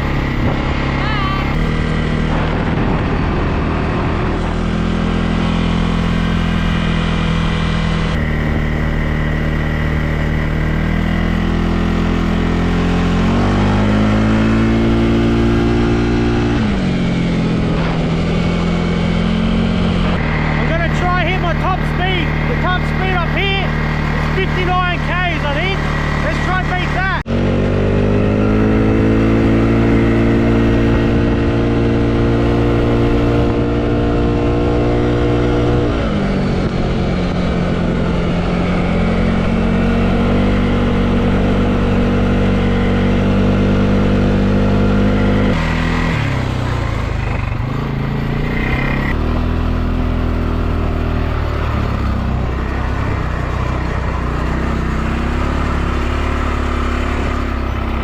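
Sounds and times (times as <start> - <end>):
quad bike engine running: 0.0 - 58.0.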